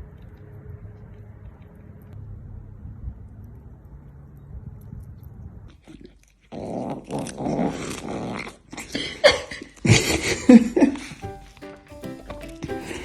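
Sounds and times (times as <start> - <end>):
dog growling: 5.7 - 11.2.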